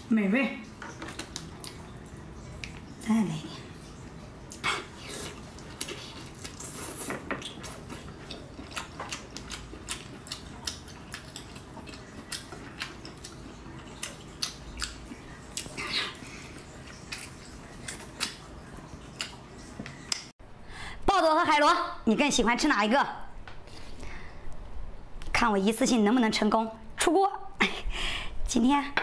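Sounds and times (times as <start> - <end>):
wet chewing with mouth clicks: 0.9 - 2.9, 4.5 - 20.3.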